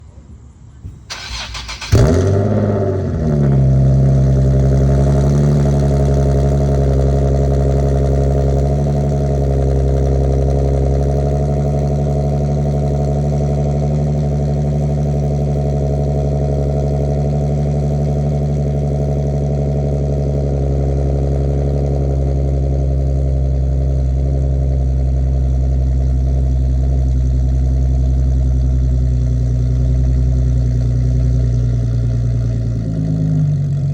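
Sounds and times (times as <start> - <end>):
car engine cold idle: 1.1 - 33.9.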